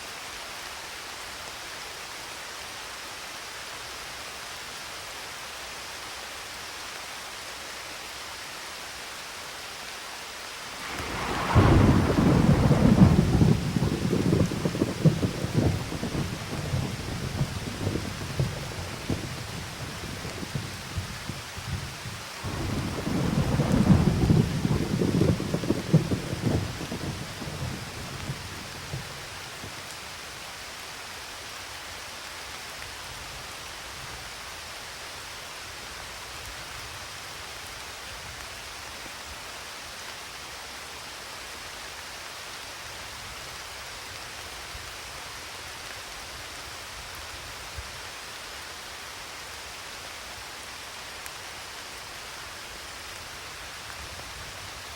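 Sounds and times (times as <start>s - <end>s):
steady rain falling: 0.0s - 54.9s
thunder rolling: 10.7s - 29.9s.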